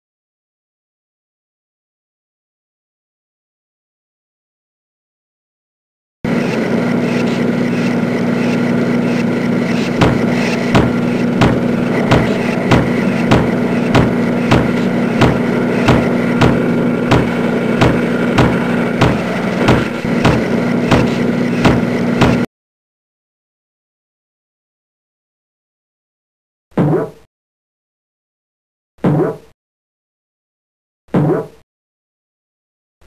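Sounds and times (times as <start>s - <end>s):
factory machinery hum: 6.3s - 22.5s
stamping press clanks: 9.9s - 22.5s.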